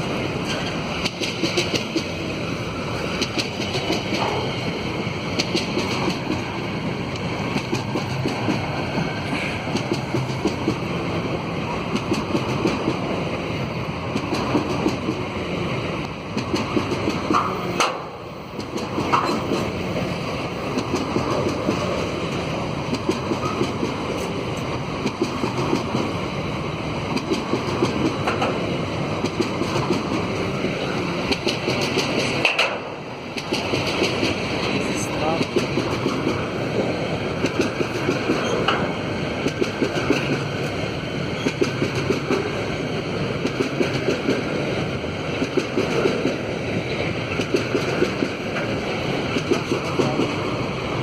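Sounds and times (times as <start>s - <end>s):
train wheels clacking on rails: 0.0s - 51.0s.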